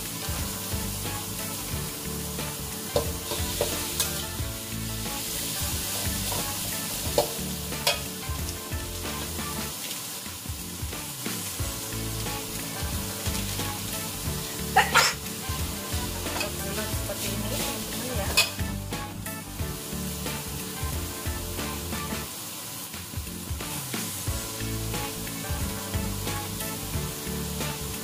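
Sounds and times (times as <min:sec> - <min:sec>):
coconut sizzling in a wok: 0:00.0 - 0:28.0
utensils clattering: 0:02.3 - 0:04.4, 0:05.4 - 0:09.7, 0:14.5 - 0:18.6.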